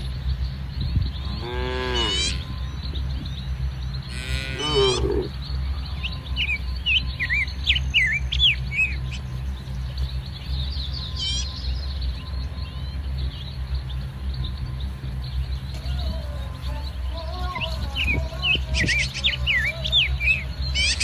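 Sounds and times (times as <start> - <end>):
small birds chirping: 0.0 - 21.0
steady low rumble: 0.0 - 21.0
cow call: 1.2 - 2.6, 4.1 - 5.4, 15.8 - 21.0.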